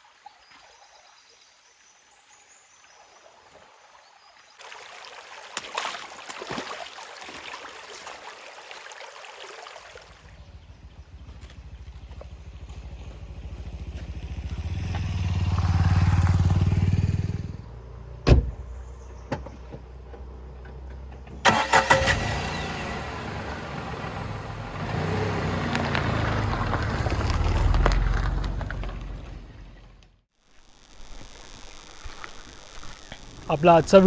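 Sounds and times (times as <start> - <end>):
vehicle engine running: 10.1 - 18.2, 19.9 - 30.3.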